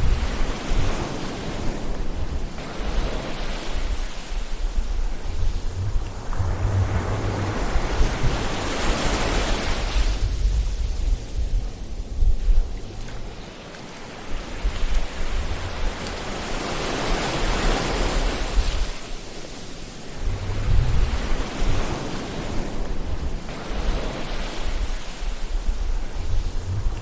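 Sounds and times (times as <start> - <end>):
ocean waves surf: 0.0 - 12.1, 12.7 - 27.0
low rumble: 4.5 - 9.2, 25.6 - 27.0.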